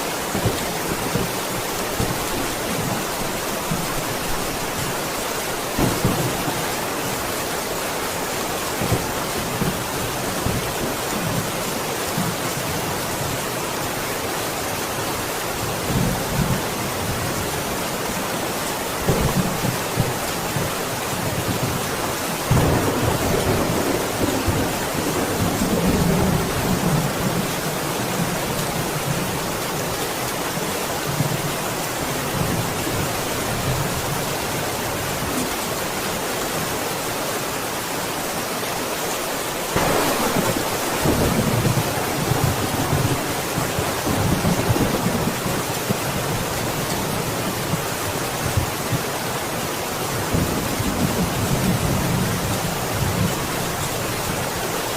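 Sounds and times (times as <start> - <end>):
heavy rain: 0.0 - 54.9
rolling thunder: 5.8 - 6.8, 22.5 - 27.4, 39.7 - 46.0.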